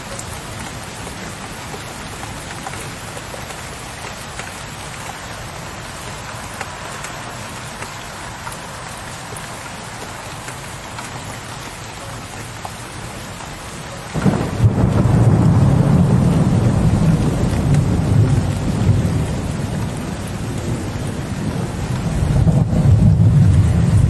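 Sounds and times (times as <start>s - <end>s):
rain pattering: 0.0s - 24.0s
thunder rumbling: 14.1s - 24.0s.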